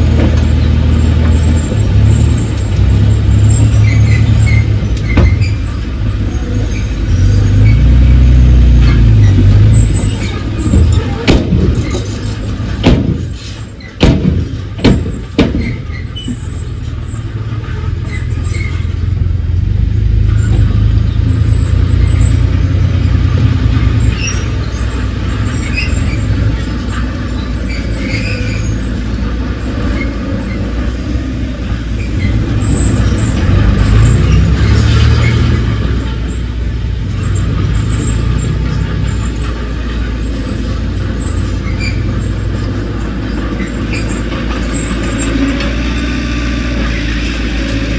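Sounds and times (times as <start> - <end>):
heavy diesel engine running: 0.0 - 47.9
sharp metallic clanks: 8.8 - 19.2.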